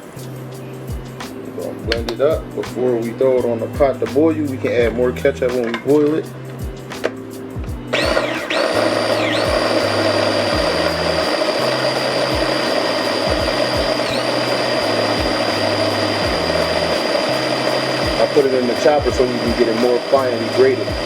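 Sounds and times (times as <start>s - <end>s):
background music with bass beat: 0.0s - 21.0s
electric blender running: 7.9s - 21.0s.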